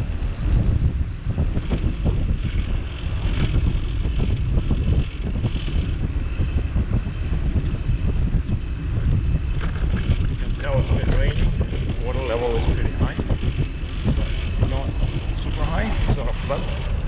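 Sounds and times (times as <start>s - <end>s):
wind buffeting microphone: 0.0s - 17.0s
bicycle knocks and jolts: 1.5s - 7.7s, 8.4s - 12.1s.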